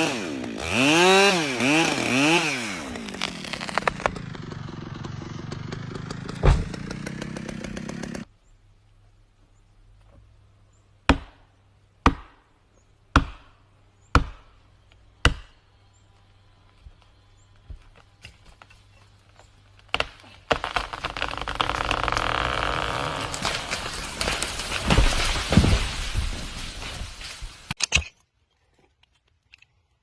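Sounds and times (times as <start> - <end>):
wood cracking: 0.0 - 8.3, 18.2 - 29.8
tree crashing through branches: 0.6 - 8.3, 19.9 - 27.8
axe strikes on wood: 6.0 - 8.2, 13.2 - 13.5.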